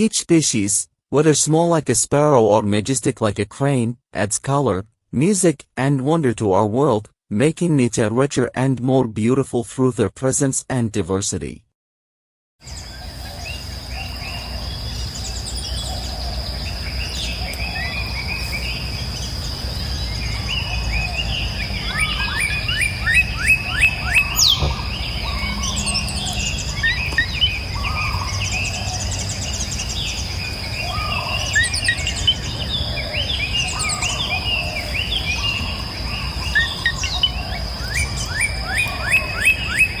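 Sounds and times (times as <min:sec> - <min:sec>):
birds chirping: 0:12.6 - 0:40.0
low outdoor rumble: 0:12.7 - 0:38.2.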